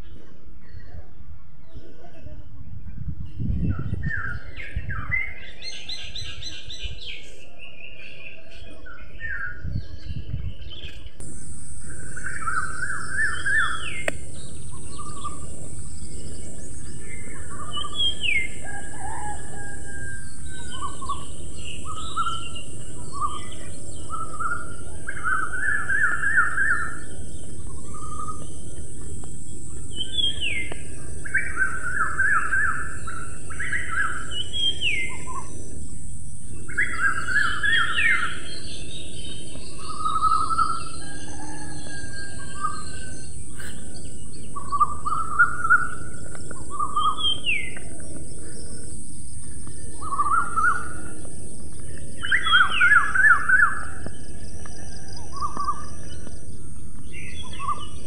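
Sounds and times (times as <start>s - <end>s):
songbirds chirping and trilling: 0.0s - 58.0s
background hiss: 10.7s - 58.0s.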